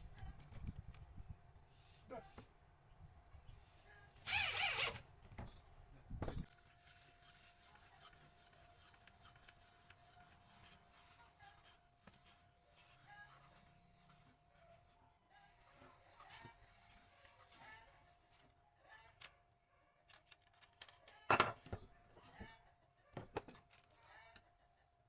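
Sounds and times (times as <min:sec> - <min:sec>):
tools clicking and tapping: 0:06.5 - 0:11.6.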